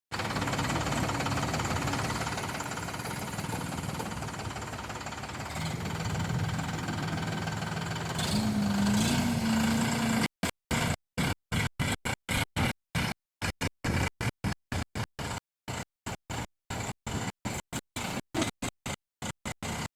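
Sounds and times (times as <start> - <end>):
tractor diesel engine knocking: 0.1 - 10.2.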